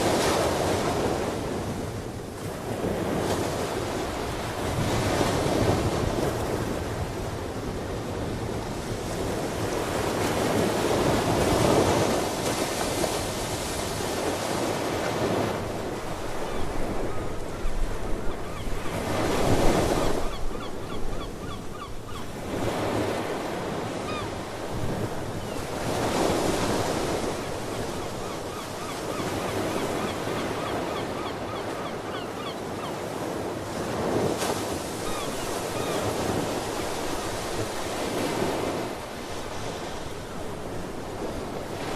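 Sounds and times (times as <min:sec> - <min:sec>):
ocean waves washing ashore: 0:00.0 - 0:41.9
wind: 0:00.0 - 0:41.9
faint sea bird calls: 0:16.4 - 0:22.4, 0:24.0 - 0:24.4, 0:27.6 - 0:33.1, 0:35.0 - 0:36.9.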